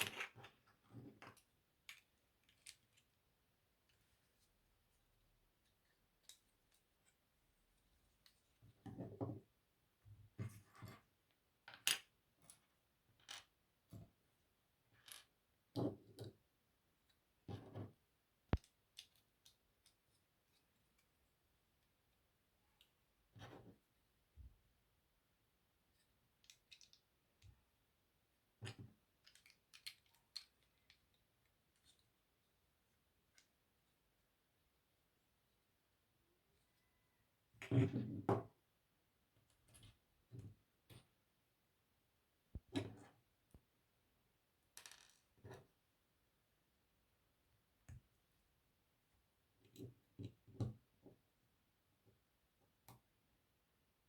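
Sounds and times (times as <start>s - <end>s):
plastic bricks clicking together: 26.4s - 27.5s, 29.2s - 31.1s.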